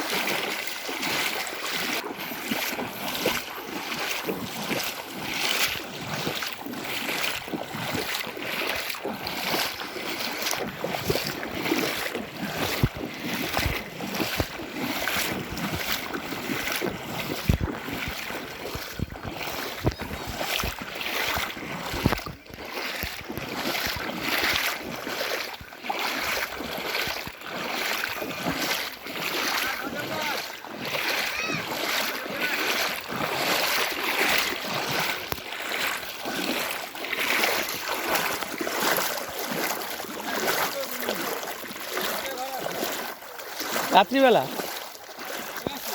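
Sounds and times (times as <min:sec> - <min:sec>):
floodwater rushing: 0:00.0 - 0:45.9
wind buffeting microphone: 0:12.4 - 0:24.5.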